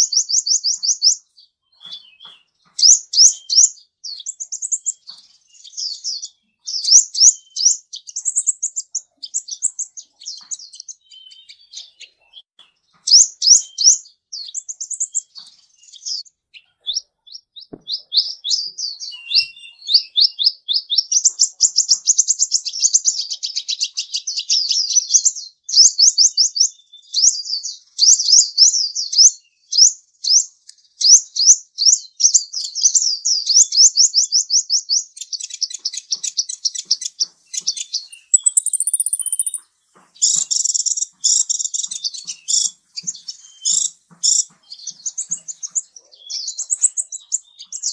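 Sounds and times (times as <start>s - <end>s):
small bird chirping: 0.0s - 47.9s
high bird whistle: 17.8s - 20.2s, 37.9s - 39.6s.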